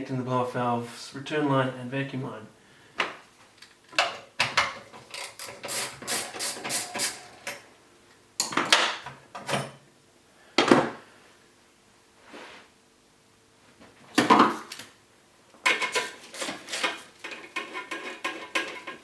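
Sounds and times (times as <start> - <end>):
hard objects knocking and rattling: 15.6 - 19.0.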